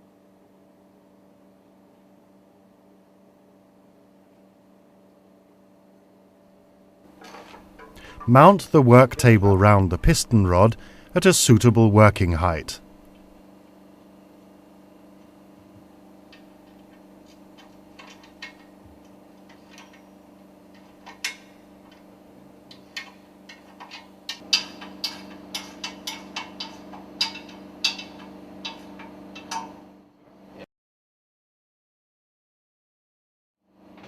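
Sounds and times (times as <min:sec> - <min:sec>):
steady low hum: 0:06.6 - 0:29.9
metal clicks and knocks: 0:17.6 - 0:18.7, 0:22.7 - 0:29.8.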